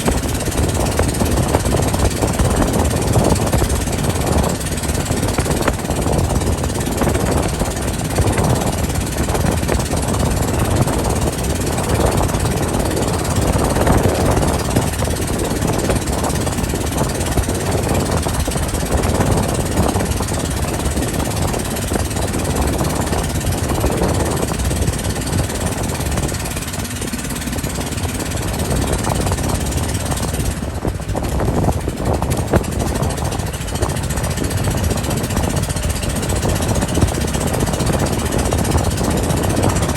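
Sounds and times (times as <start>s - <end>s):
motorboat engine rumble: 0.0s - 39.9s
rushing water noise: 0.0s - 39.9s.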